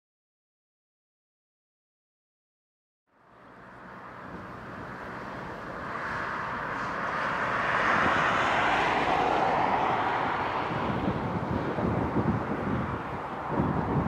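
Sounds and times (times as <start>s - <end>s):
jet aircraft approaching: 3.2s - 14.0s.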